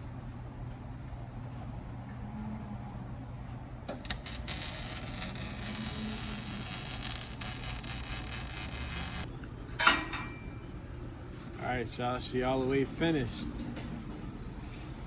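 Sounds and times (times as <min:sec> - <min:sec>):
welding arc crackling: 0:03.9 - 0:09.3
low hum: 0:03.9 - 0:11.6.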